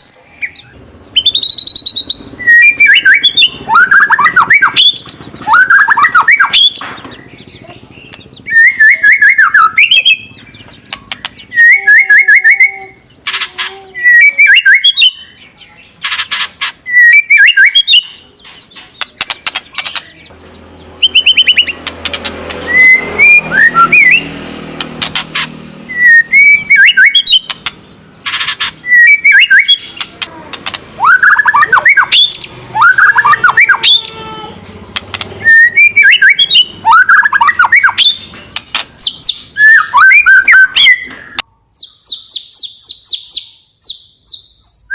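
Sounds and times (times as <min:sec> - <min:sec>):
bird whistled phrases: 0:00.0 - 0:06.8, 0:07.6 - 0:10.6, 0:11.2 - 0:13.1, 0:14.0 - 0:15.8, 0:16.9 - 0:18.2, 0:21.0 - 0:21.8, 0:22.6 - 0:24.3, 0:25.9 - 0:27.5, 0:28.8 - 0:30.2, 0:31.0 - 0:34.1, 0:35.4 - 0:38.3, 0:39.0 - 0:44.9
bird harsh rattling calls: 0:00.0 - 0:11.7, 0:13.0 - 0:13.8, 0:14.4 - 0:34.2.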